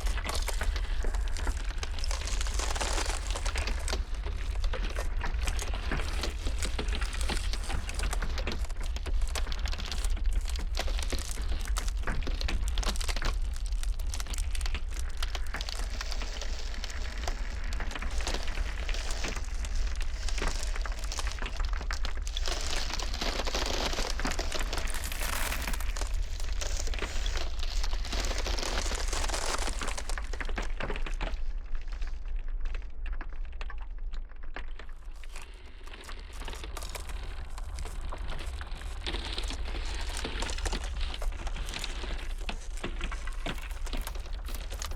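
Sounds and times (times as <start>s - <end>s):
low blizzard wind rumble: 0.0s - 32.3s
ice cracking: 0.0s - 44.9s.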